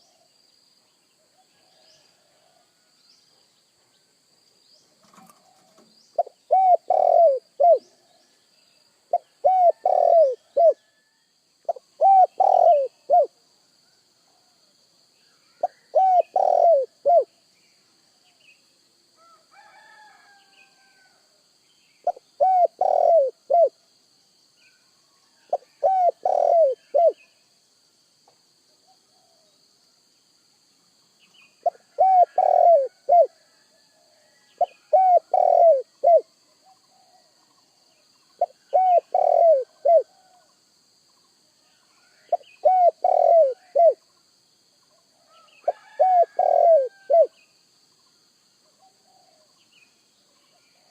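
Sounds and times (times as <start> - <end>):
small birds chirping: 4.7 - 10.8, 38.1 - 40.0
dove cooing: 5.0 - 8.0, 9.1 - 10.9, 11.7 - 13.4, 15.5 - 17.3, 22.0 - 23.7, 25.5 - 27.2, 31.6 - 33.4, 34.6 - 37.4, 38.4 - 40.5, 42.2 - 44.0, 45.4 - 47.3.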